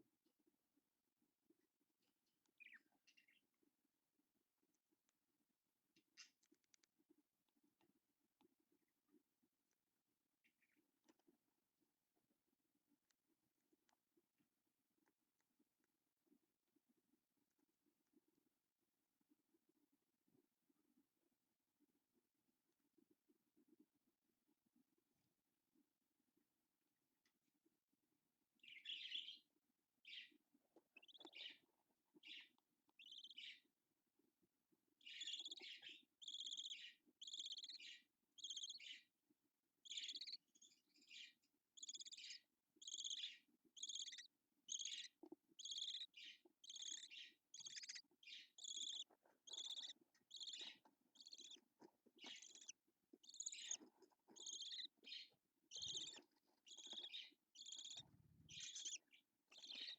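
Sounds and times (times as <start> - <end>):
budgerigar chirping: 28.6 - 29.4, 30.0 - 31.6, 32.2 - 33.6, 35.0 - 39.1, 39.8 - 59.9.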